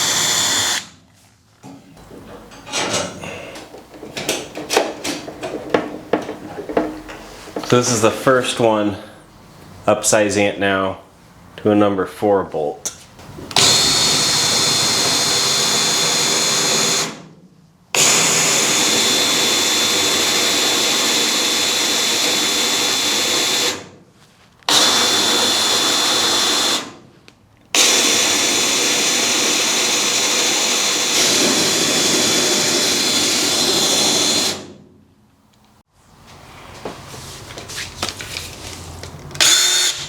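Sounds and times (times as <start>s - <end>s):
power drill running: 0.0s - 1.0s, 13.5s - 17.2s, 18.0s - 23.8s, 24.7s - 26.9s, 27.8s - 34.8s, 39.4s - 40.0s.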